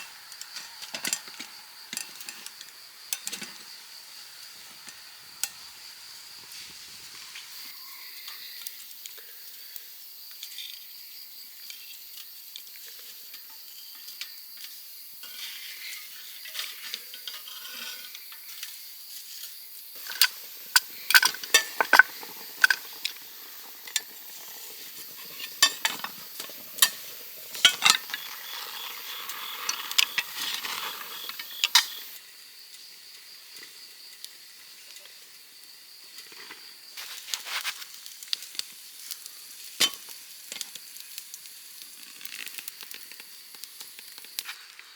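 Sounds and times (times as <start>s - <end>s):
food sizzling in a pan: 0.0s - 44.9s
high-pitched insect calls: 0.0s - 44.9s
utensils scraping cookware: 20.0s - 32.1s.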